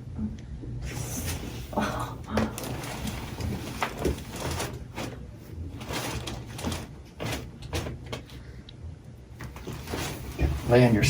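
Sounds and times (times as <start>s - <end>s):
low steady hum: 0.0s - 11.0s
rustles and soft knocks: 2.4s - 8.4s, 9.4s - 11.0s.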